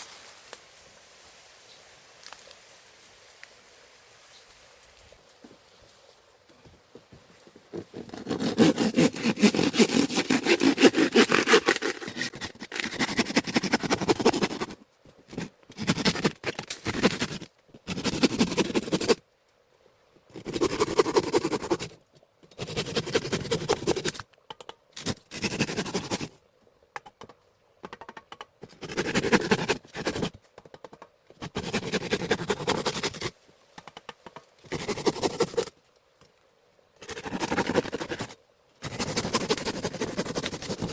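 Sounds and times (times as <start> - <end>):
scraping bursts: 7.8 - 14.7.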